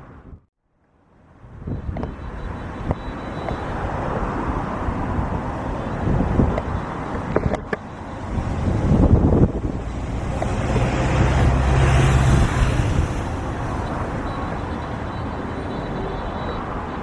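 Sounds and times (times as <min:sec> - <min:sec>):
wind buffeting microphone: 0:01.4 - 0:17.0
vehicle passing by: 0:08.2 - 0:15.8.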